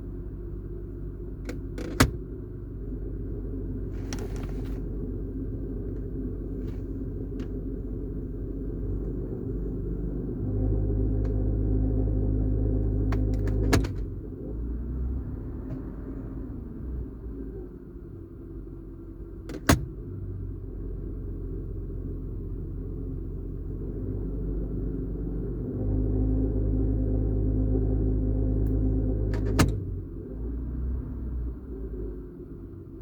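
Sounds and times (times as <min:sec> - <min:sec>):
car engine idling rumble: 0:00.0 - 0:33.0
gear selector click: 0:01.5 - 0:02.2, 0:13.0 - 0:14.0.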